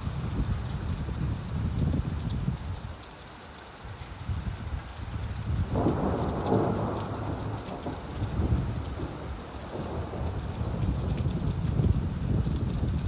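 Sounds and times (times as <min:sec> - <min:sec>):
steady rain: 0:00.0 - 0:13.0
rolling thunder: 0:05.6 - 0:13.0.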